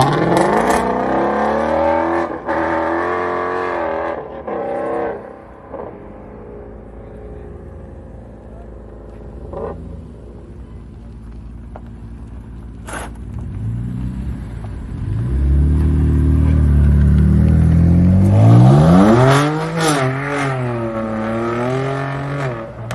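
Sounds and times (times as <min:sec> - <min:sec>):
sports car engine revving: 0:00.0 - 0:10.3, 0:12.8 - 0:22.9.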